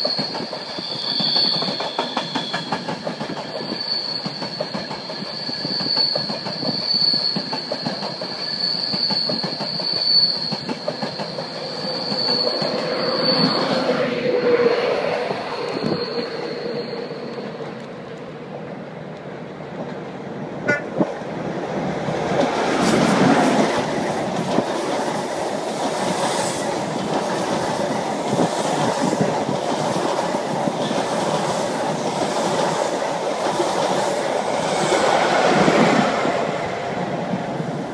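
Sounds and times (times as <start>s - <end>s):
train passing with wheel clatter: 0.0s - 37.9s
train horn toots: 20.6s - 21.0s.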